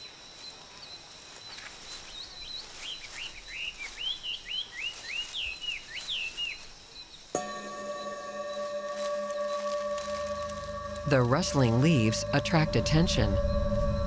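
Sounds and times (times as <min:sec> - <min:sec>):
droning music notes: 0:07.4 - 0:14.0
steady high-pitched tone: 0:07.4 - 0:14.0.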